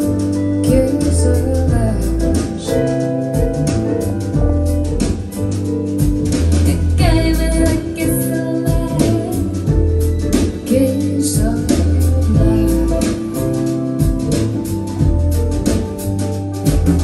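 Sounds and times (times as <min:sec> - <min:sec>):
plucked guitar: 0:00.0 - 0:17.0
deep bass notes: 0:00.7 - 0:10.4
person singing: 0:06.7 - 0:13.8
steady beat: 0:12.2 - 0:17.0.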